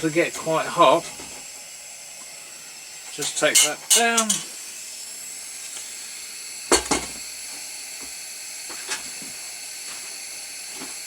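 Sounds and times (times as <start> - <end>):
pressure lamp hissing: 0.0 - 11.0
sharp knocks on lamp: 6.7 - 7.2.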